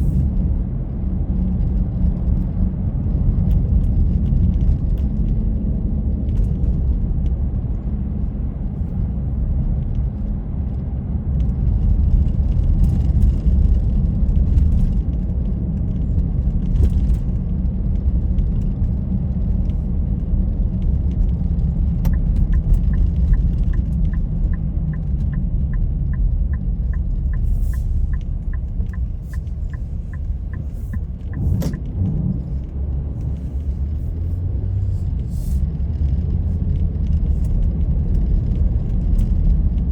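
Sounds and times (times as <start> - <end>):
car driving rumble: 0.0 - 39.9
turn signal ticking: 20.8 - 34.2.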